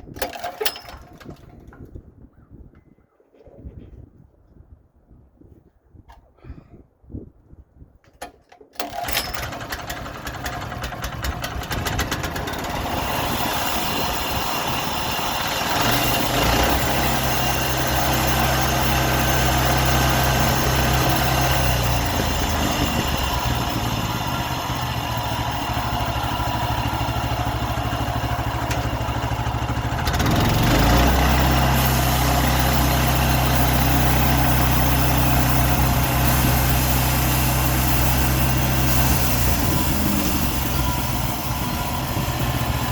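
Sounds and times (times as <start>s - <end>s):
sawmill engine running: 8.8s - 42.9s.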